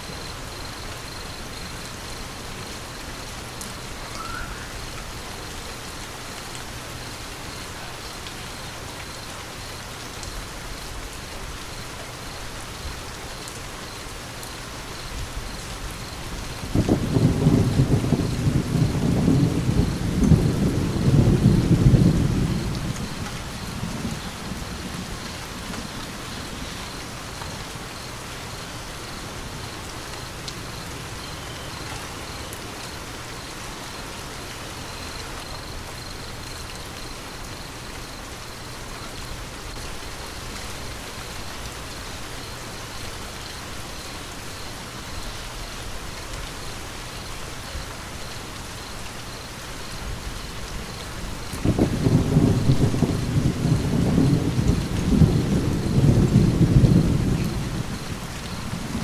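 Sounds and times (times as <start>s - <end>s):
steady rain falling: 0.0s - 59.0s
thunder rumble: 15.1s - 28.1s, 49.9s - 59.0s.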